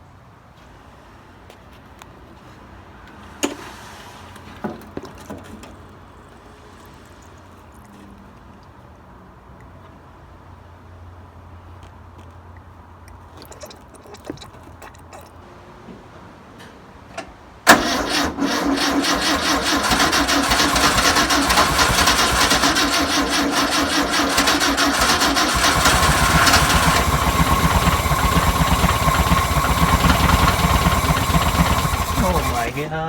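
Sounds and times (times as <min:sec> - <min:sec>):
air-cooled engine starting and running: 0:17.6 - 0:33.0.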